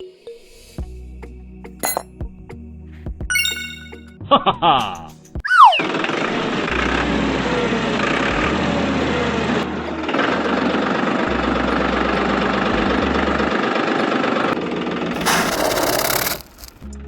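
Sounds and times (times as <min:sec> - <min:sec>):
small model tractor motor rattling: 0:15.2 - 0:16.8.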